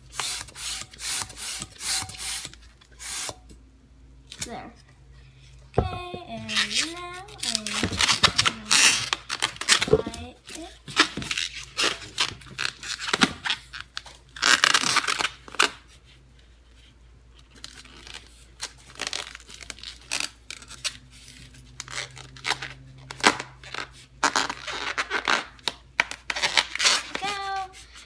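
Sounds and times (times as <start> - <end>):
rubber balloon rubbing and crinkling: 5.9 - 17.0, 18.9 - 28.0.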